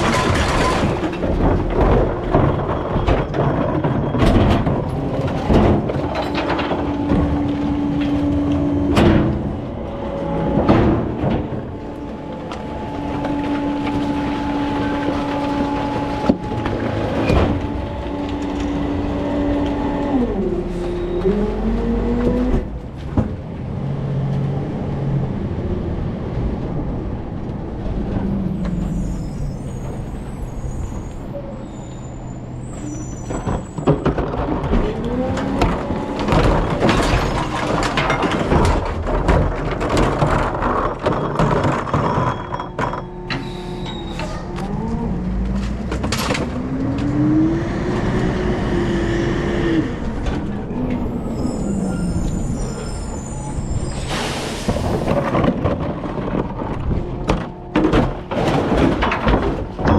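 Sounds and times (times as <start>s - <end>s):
clattering and banging: 0.0s - 23.6s, 32.6s - 47.6s, 48.8s - 59.9s
truck engine and hydraulic whine: 0.0s - 59.9s
faint high squeal: 20.7s - 21.6s, 28.3s - 34.0s, 42.0s - 44.6s, 50.7s - 55.0s.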